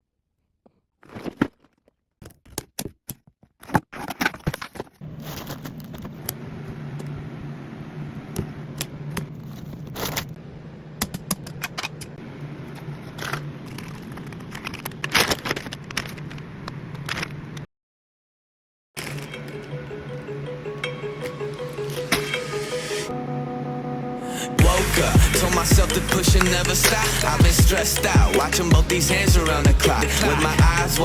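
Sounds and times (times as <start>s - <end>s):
crinkling and scraping: 0.3s - 7.2s, 8.8s - 10.4s, 11.1s - 17.7s, 19.0s - 19.8s
plastic pieces rattling and clicking: 13.0s - 16.4s, 19.0s - 19.8s
steady low hum: 23.1s - 31.0s.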